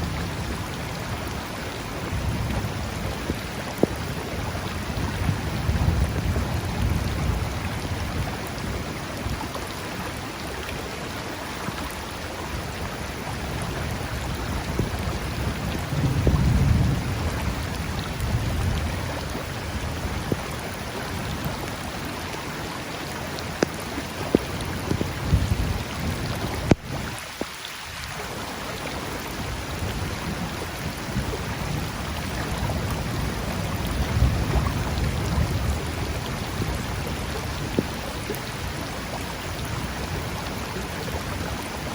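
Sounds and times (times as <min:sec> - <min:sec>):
low thunder rumbles: 0:00.0 - 0:09.0, 0:13.4 - 0:21.6, 0:29.2 - 0:38.1
heavy rain falling: 0:00.0 - 0:41.9
river flowing: 0:00.0 - 0:41.9.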